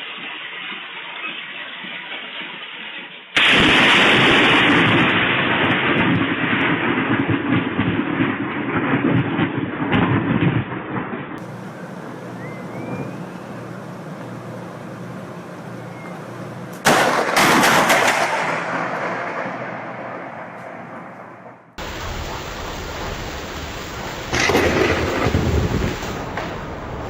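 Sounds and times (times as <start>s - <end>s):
steady hiss: 0.0s - 3.4s, 11.4s - 16.8s, 21.8s - 27.0s
thunderclap crackling and rumbling: 3.4s - 27.0s.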